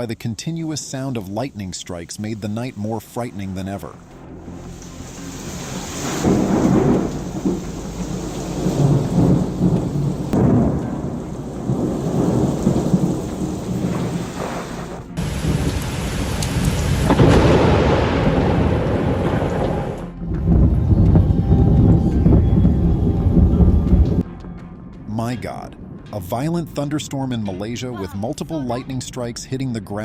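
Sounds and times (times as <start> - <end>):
thunder rumbling: 2.0 - 24.2
heavy rain: 2.6 - 24.2.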